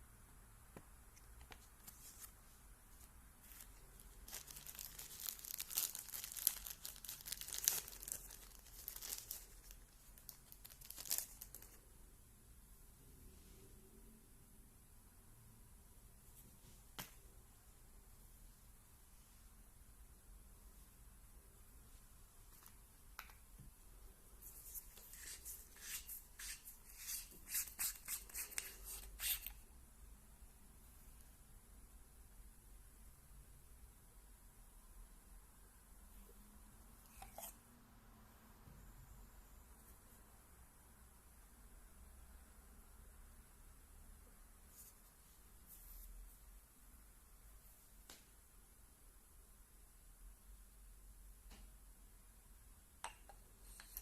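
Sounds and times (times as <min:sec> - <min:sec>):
packaging crinkling and tearing: 0:03.5 - 0:11.8.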